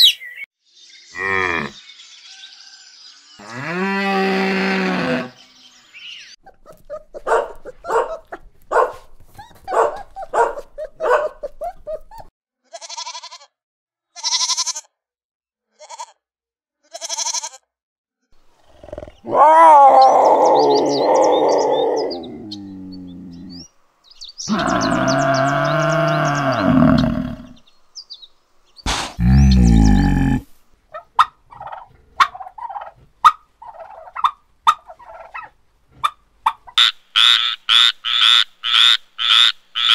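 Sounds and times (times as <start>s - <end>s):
loud animal bellow: 3.4s - 5.4s, 18.6s - 23.6s, 24.5s - 27.6s, 28.9s - 30.5s
small dog barking: 6.4s - 12.3s
goat bleating: 9.4s - 13.5s, 14.2s - 14.9s, 15.7s - 16.2s, 16.8s - 17.7s.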